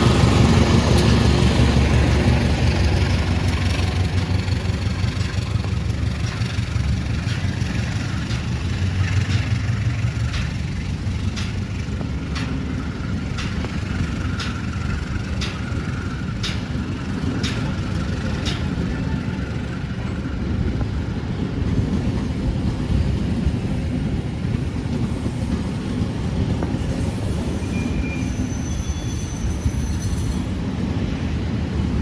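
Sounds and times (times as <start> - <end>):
sharp clicks of train wheels: 0.0 - 32.0
train rumbling past: 0.0 - 32.0
faint high squeal: 22.1 - 30.6.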